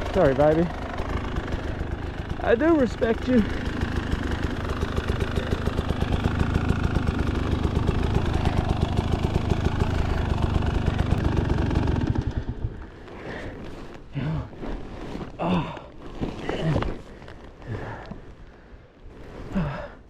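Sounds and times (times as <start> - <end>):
dirt bike engine idling: 0.0 - 14.6.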